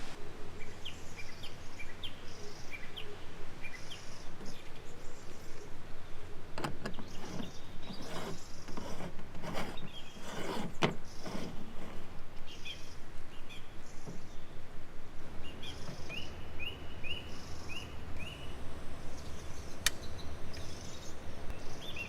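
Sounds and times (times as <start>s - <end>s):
small birds chirping: 0.5s - 22.0s
rustling and scraping handling noise: 6.5s - 13.0s.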